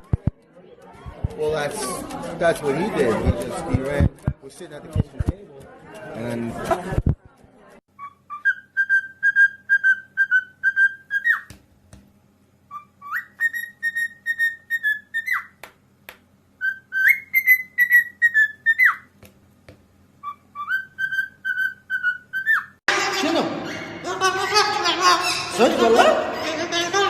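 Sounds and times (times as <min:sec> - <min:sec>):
parrot whistling: 0:08.0 - 0:11.5, 0:12.7 - 0:15.6, 0:16.6 - 0:19.1, 0:20.2 - 0:22.8.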